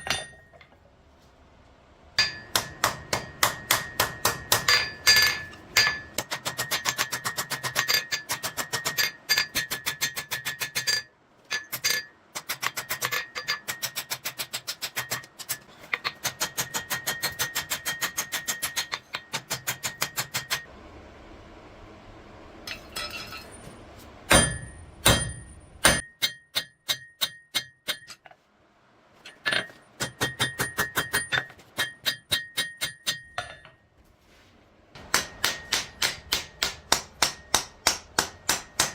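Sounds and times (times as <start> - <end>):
anvil ringing: 0.0 - 0.6, 2.2 - 12.1, 24.3 - 28.2, 35.0 - 38.9
hammer striking steel on anvil: 0.0 - 0.7, 2.2 - 20.7, 24.3 - 28.3, 29.3 - 33.8, 35.0 - 38.9.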